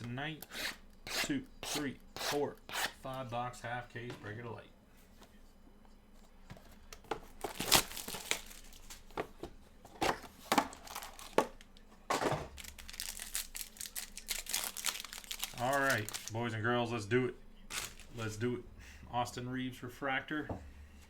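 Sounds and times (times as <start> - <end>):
plastic wrapping crinkling and tearing: 7.4 - 9.1, 10.7 - 11.7, 12.5 - 16.4, 17.7 - 18.2.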